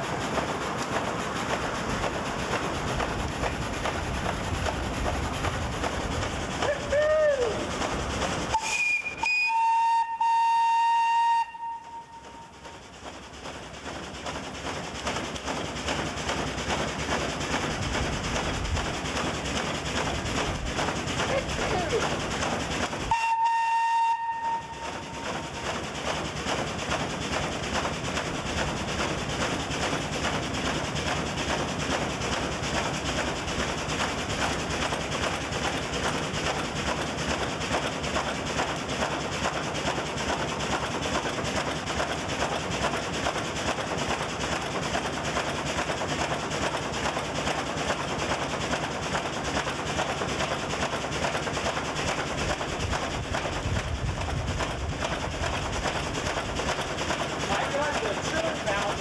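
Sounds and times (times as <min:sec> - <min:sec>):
steam pump pistons beating: 0:00.0 - 0:59.0
steam whistle: 0:06.6 - 0:07.6, 0:08.5 - 0:12.8, 0:23.1 - 0:25.6.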